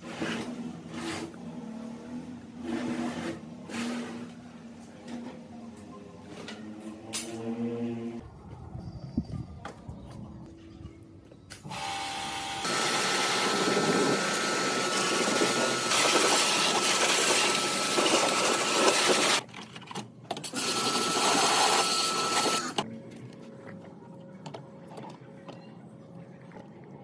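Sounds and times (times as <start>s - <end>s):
small electric power tool running: 11.7s - 19.4s, 20.6s - 22.8s.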